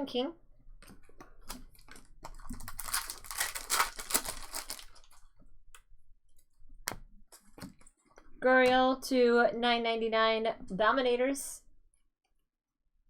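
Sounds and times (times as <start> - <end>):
cards rustling and clicking: 0.8 - 5.2
wrapper tearing and crinkling: 1.4 - 5.3.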